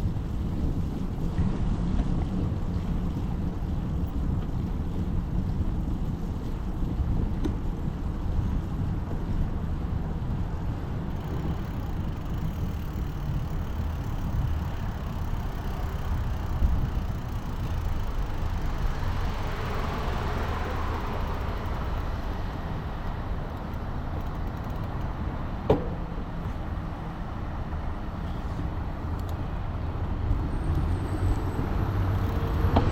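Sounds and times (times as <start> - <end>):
bicycle wind and road rumble: 0.0 - 32.9
motor vehicle passing: 10.8 - 23.0.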